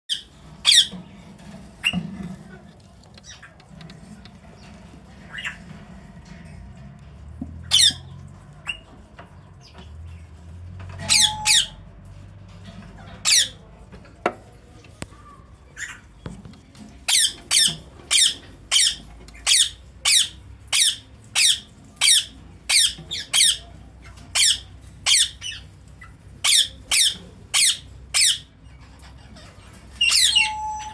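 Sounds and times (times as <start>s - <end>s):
parakeet screeching: 0.1s - 0.9s, 7.6s - 8.8s, 11.0s - 11.8s, 17.1s - 23.6s, 30.0s - 30.9s.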